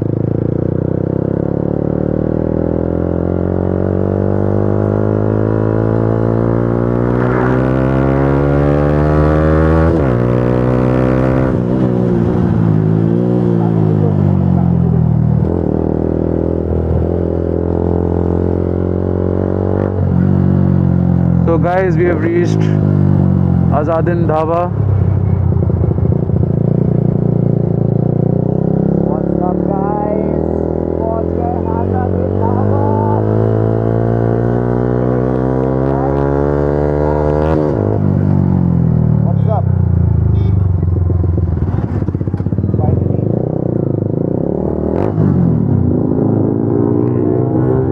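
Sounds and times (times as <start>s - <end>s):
motorcycle engine accelerating: 0.0s - 47.9s
motorcycle engine idling: 39.6s - 43.7s.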